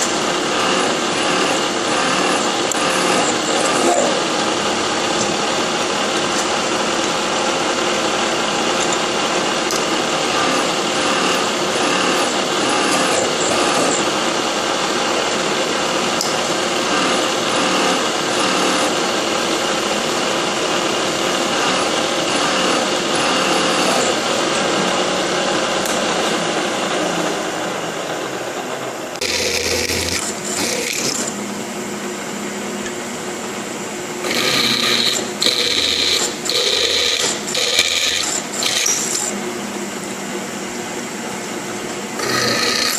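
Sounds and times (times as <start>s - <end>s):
milling machine drilling steel: 0.0s - 25.1s, 29.1s - 31.7s, 34.2s - 39.4s, 42.1s - 42.9s.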